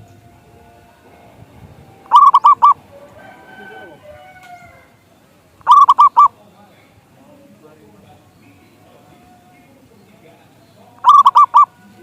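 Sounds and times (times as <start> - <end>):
dove cooing: 2.0 - 5.0, 5.6 - 6.4, 11.0 - 12.0
faint bird calls: 2.1 - 2.9, 5.6 - 6.5, 9.9 - 12.0.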